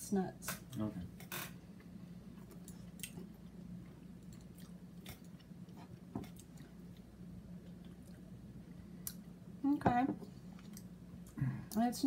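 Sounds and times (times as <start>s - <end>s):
person chewing nuts: 1.8s - 8.4s.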